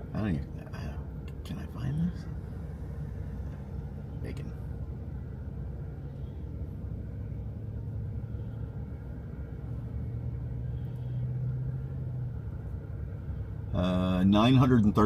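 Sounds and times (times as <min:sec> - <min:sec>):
car interior drone: 0:00.0 - 0:15.0
steady hum: 0:00.0 - 0:15.0.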